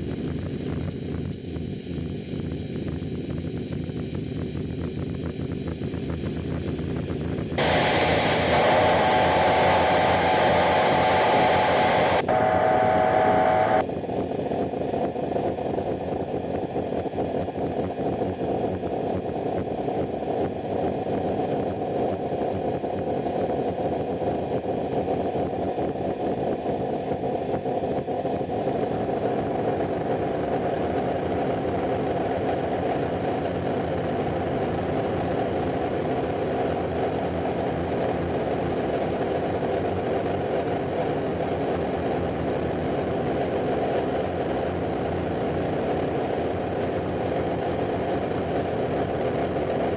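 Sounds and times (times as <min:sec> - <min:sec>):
harsh distorted noise music: 0:07.6 - 0:13.8.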